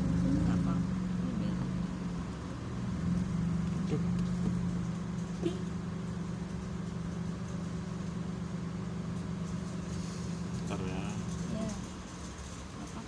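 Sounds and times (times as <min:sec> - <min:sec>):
car idling hum: 0:00.0 - 0:13.0.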